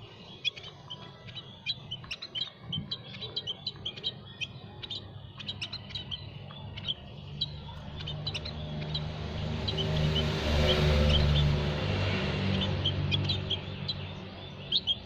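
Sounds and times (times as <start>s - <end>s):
small songbirds chirping: 0.0s - 15.0s
low rumbling noise: 4.2s - 15.0s.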